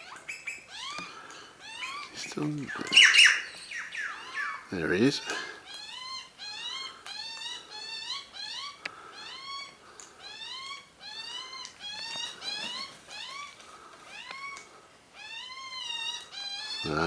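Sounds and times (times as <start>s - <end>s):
bird calling in squeaky notes: 0.0s - 17.0s.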